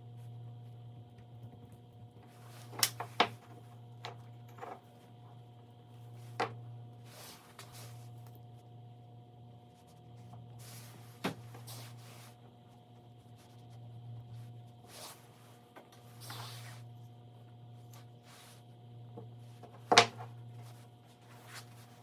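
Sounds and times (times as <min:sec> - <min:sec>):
soft scrapes and rubs on wood: 0:07.0 - 0:08.2, 0:09.7 - 0:16.9, 0:20.6 - 0:22.0.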